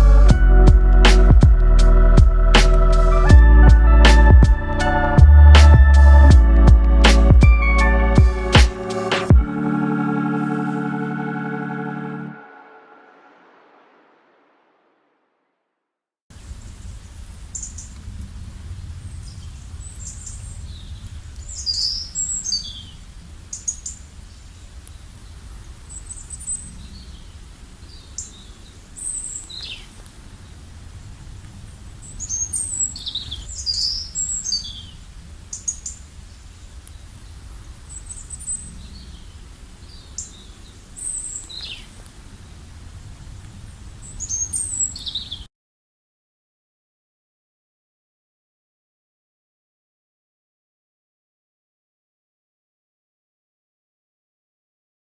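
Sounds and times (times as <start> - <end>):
steady low rumble: 0.0 - 9.6
small birds chirping: 19.2 - 30.6, 32.0 - 42.2, 43.7 - 45.5.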